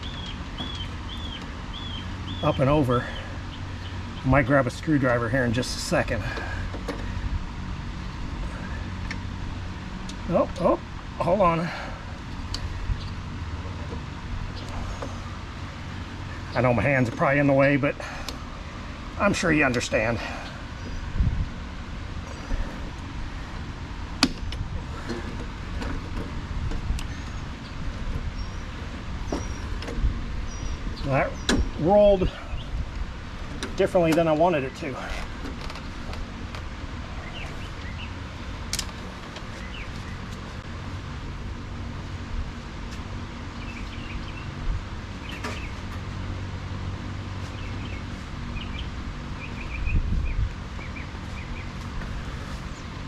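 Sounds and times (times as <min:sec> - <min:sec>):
small birds chirping: 0:00.0 - 0:41.1, 0:41.8 - 0:53.0
low hum: 0:00.0 - 0:53.0
steady low rumble: 0:00.0 - 0:53.0
sharp click: 0:38.7 - 0:39.0.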